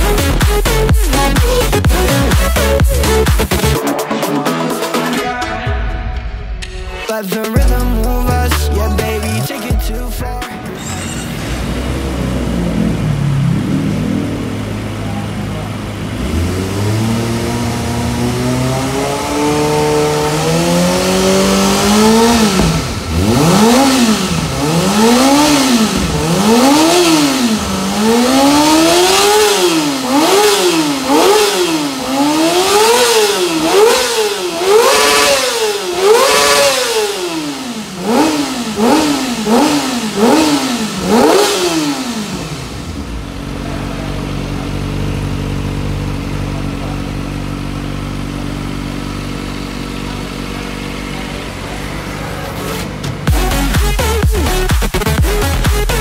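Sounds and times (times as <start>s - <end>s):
motorcycle engine idling: 0.0s - 3.8s, 11.7s - 56.0s
motorcycle engine revving: 0.0s - 3.8s, 10.6s - 56.0s.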